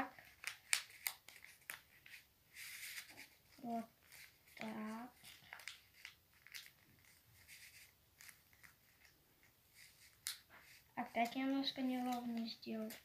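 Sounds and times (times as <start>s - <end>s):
paper rustling and crinkling: 0.0s - 13.0s.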